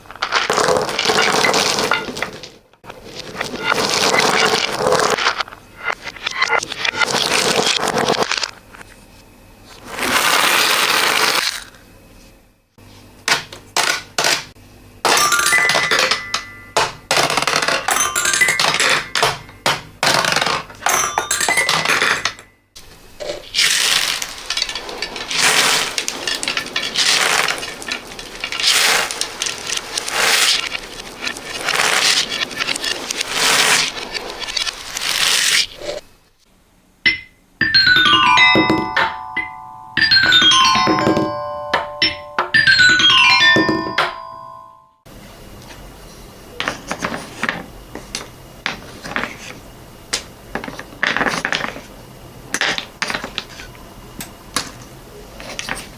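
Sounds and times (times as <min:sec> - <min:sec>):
beads and marbles clattering: 0:00.0 - 0:08.5, 0:15.1 - 0:22.4, 0:23.2 - 0:36.0.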